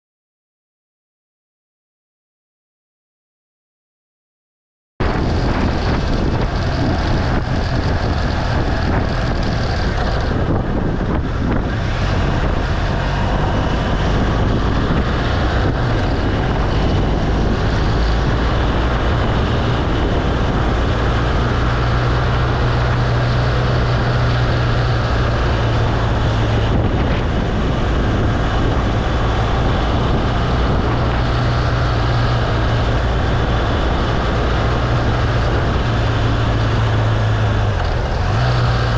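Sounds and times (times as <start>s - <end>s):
motorcycle engine running: 5.0s - 38.9s
wind noise on microphone: 5.0s - 38.9s.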